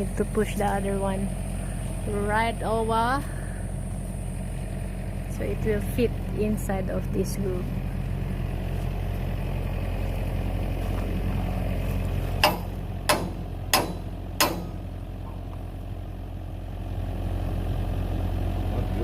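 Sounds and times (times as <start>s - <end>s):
diesel engine idling: 0.0s - 19.0s
sharp metal knocks: 12.4s - 14.9s.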